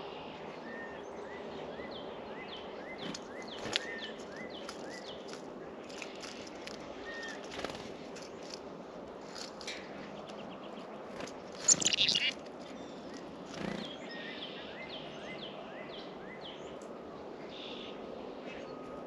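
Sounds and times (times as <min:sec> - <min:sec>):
songbirds calling: 0:00.0 - 0:19.0
steady outdoor hiss: 0:00.0 - 0:19.0
rapid bird chattering call: 0:11.6 - 0:12.4
repeated whistled bird notes: 0:11.6 - 0:12.4.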